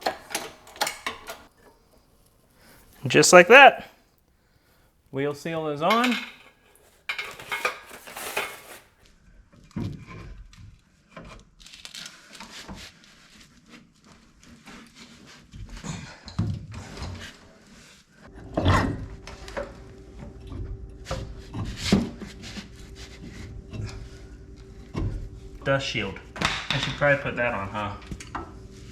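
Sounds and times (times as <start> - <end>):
metal tools knocking and clicking: 0.0 - 1.5, 5.9 - 7.8
steady low hum: 18.3 - 28.9.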